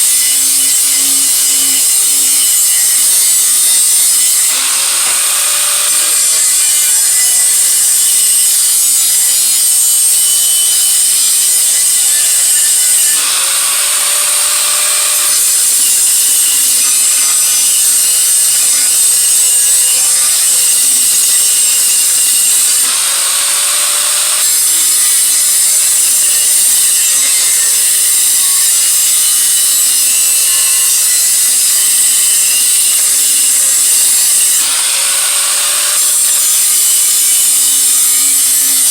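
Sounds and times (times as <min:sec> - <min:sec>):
power grinder grinding metal: 0:00.0 - 0:38.9.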